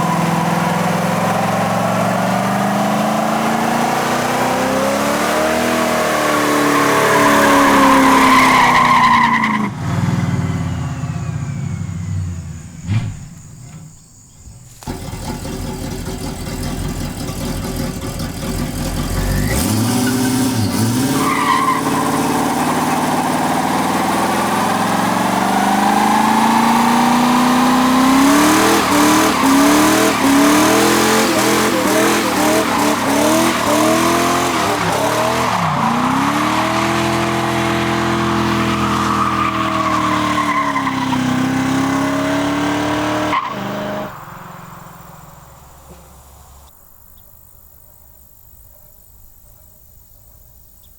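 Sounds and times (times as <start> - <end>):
car engine revving hard: 0.0 - 13.2, 14.8 - 46.7
tires spinning and squealing: 0.0 - 14.1, 14.7 - 46.7.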